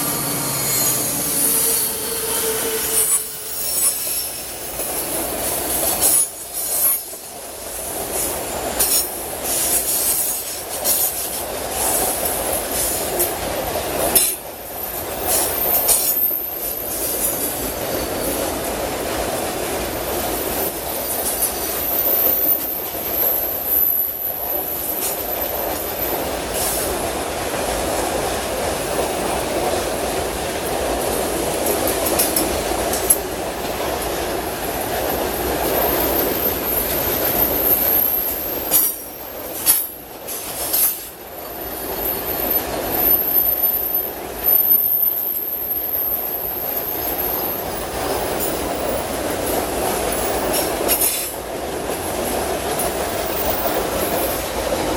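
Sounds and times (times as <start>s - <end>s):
high wheel squeal: 0.0s - 5.2s, 41.6s - 47.7s
train wagons rumbling: 0.0s - 54.9s
sharp rail clacks: 31.0s - 34.6s.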